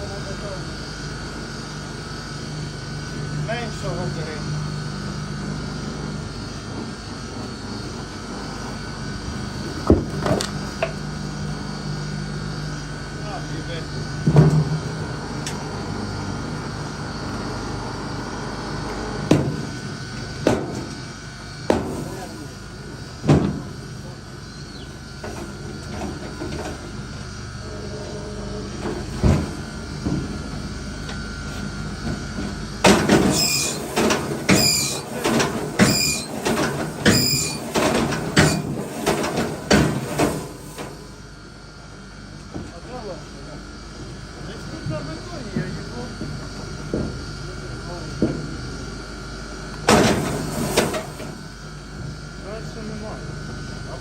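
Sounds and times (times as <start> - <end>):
engine hum: 0.0 - 41.6
firewood knocks: 9.9 - 10.5
short high squeal: 33.3 - 33.9, 34.5 - 35.1, 35.8 - 36.3, 37.1 - 37.6.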